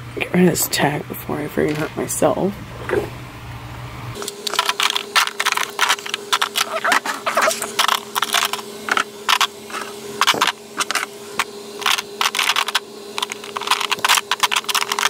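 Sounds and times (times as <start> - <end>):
steady low hum: 0.0 - 15.0
makeup bottles clicking and rustling: 4.2 - 11.1, 11.8 - 15.0.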